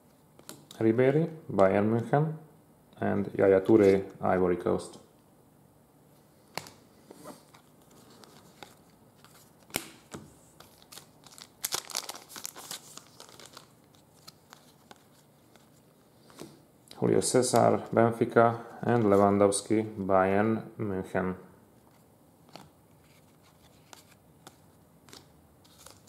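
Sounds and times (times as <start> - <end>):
paper and plastic rustling: 7.2 - 9.6, 10.6 - 16.5, 21.9 - 26.0.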